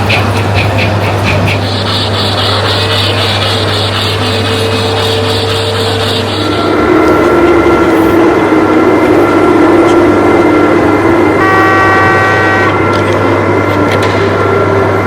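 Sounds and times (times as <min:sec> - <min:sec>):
model train running hum: 0:00.0 - 0:15.0
model train horn: 0:11.3 - 0:13.2.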